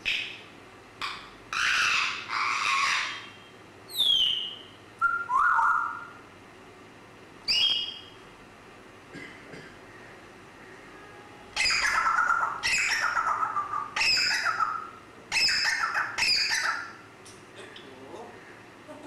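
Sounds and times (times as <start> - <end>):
parrot squawking: 1.0 - 6.2, 11.5 - 17.0.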